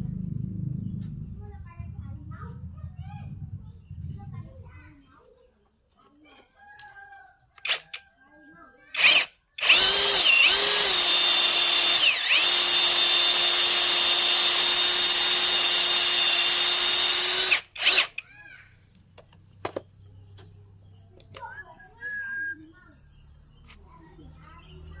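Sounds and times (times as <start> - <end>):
electric drill whining: 7.6 - 8.0, 9.0 - 18.2.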